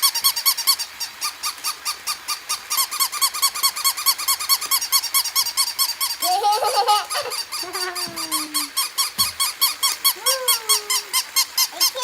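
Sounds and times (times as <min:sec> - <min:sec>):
puppy yipping: 0:06.2 - 0:12.0.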